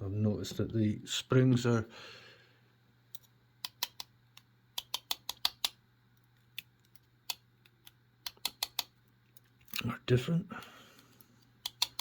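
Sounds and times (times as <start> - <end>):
small sharp metal clicks: 3.1 - 9.9, 11.6 - 12.0.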